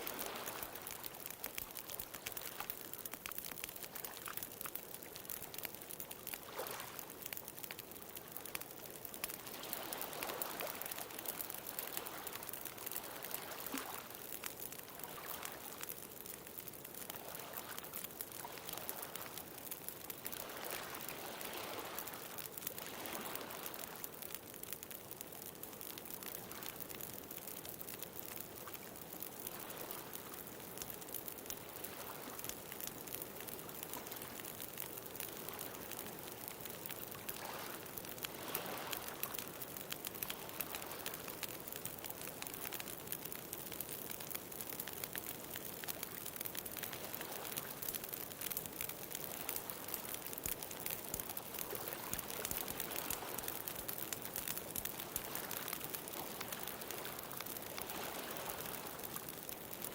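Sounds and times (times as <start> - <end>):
ocean waves: 0.0 - 2.7, 9.4 - 14.1, 22.8 - 24.0, 37.3 - 39.4, 51.6 - 54.5, 55.1 - 59.3
bonfire crackling: 0.0 - 59.9.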